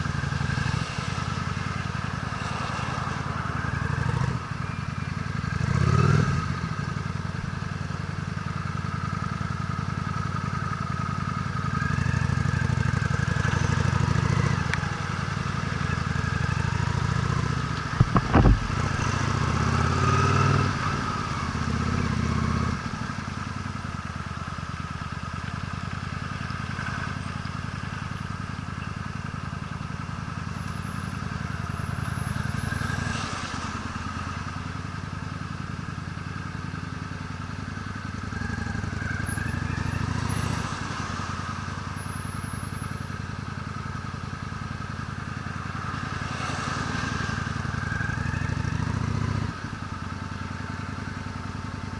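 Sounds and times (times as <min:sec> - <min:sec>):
motorcycle engine revving: 0:00.0 - 0:07.6, 0:08.3 - 0:25.2, 0:35.7 - 0:51.9.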